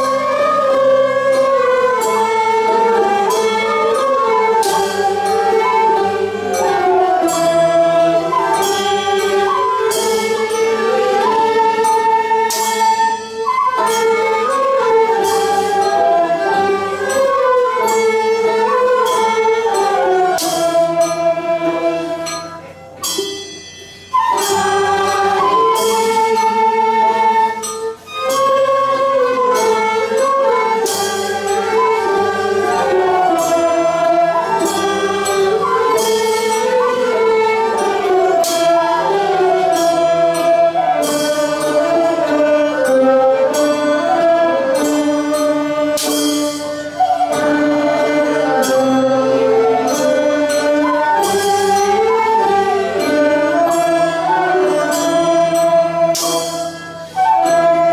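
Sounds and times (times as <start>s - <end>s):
sharp percussive strikes: 0.0s - 57.9s
ensemble bending melodic lines: 23.7s - 57.9s.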